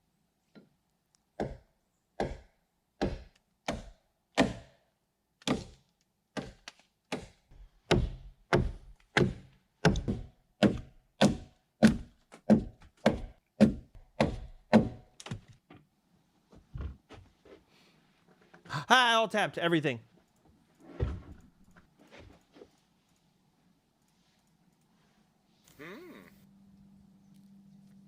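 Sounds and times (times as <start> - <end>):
hand tool striking wood: 6.4 - 15.1.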